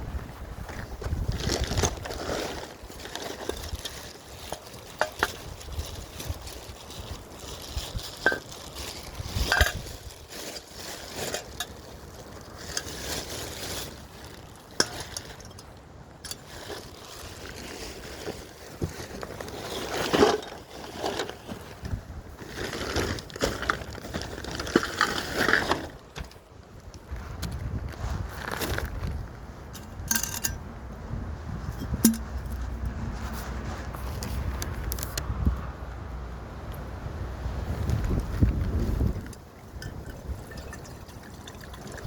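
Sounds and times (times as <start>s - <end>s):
knocks and rustling of handling: 0.6s - 30.6s, 31.6s - 35.3s
clink: 30.1s - 30.6s.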